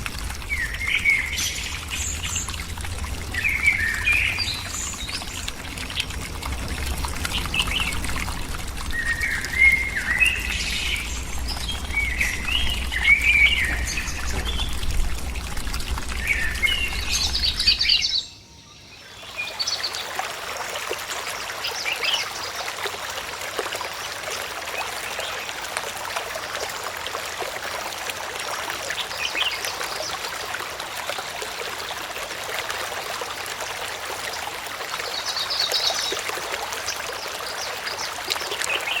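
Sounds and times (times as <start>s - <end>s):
birds chirping: 0.0s - 20.0s
rushing water: 0.0s - 39.0s.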